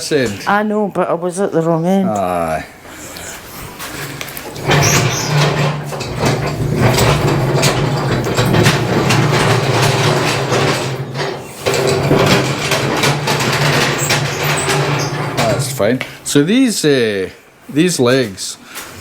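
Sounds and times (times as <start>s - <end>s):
lift table rolling on castors: 3.8s - 16.4s.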